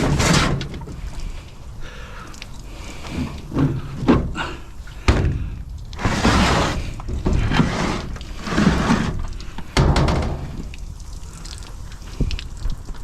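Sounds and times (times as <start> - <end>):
water sloshing in washing machine: 3.0 - 12.5.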